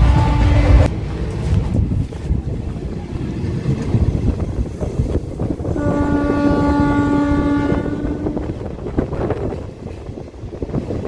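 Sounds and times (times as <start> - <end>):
train horn blast: 0.0 - 0.9, 5.7 - 8.7
train carriage rumble and rattle: 0.0 - 11.0.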